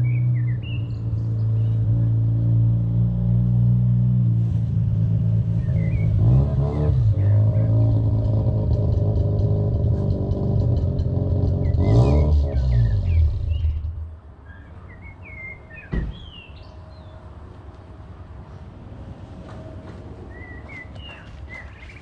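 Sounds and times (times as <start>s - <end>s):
rotary engine idling and revving: 0.0s - 14.2s
birds chirping: 5.5s - 8.1s, 20.2s - 22.0s.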